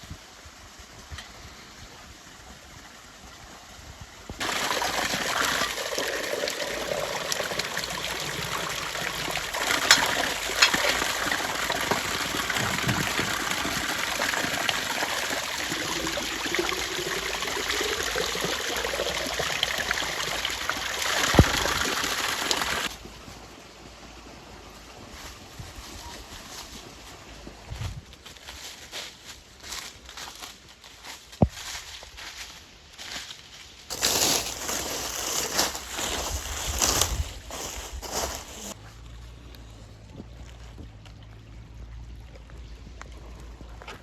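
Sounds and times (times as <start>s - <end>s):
water pouring into a pot: 4.4s - 22.9s.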